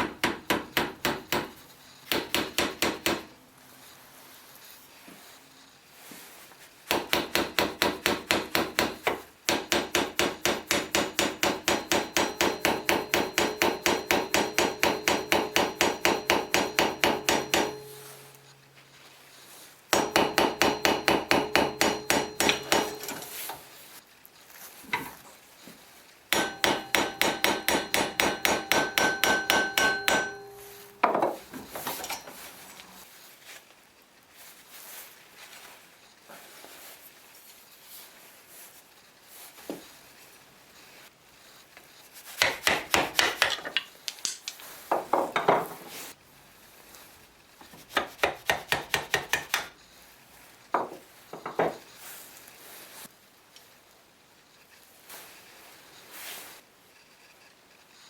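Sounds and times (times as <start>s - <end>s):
small hammer striking metal: 0.0s - 3.3s, 6.9s - 18.5s, 19.9s - 23.6s, 26.3s - 32.3s, 42.4s - 44.4s, 48.0s - 49.8s.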